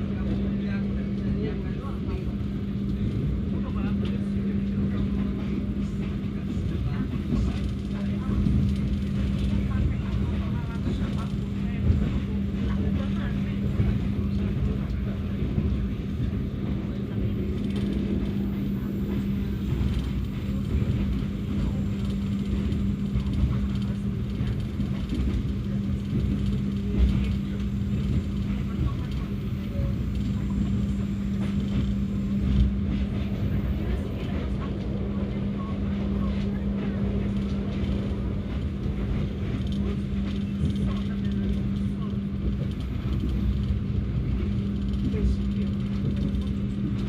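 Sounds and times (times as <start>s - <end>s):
train rumbling: 0.0s - 47.0s.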